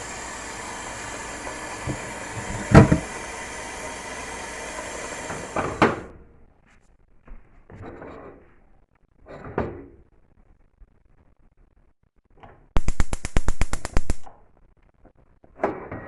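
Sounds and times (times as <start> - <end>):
stove spark igniter clicking: 12.8 - 14.3.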